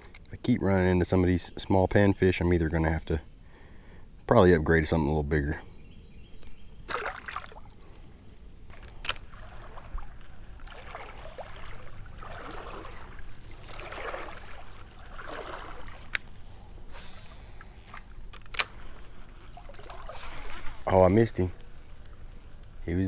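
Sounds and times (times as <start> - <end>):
crickets droning: 0.0 - 23.0
water sloshing around a boat: 0.0 - 23.0
sharp clicks: 8.8 - 9.2, 17.0 - 19.0.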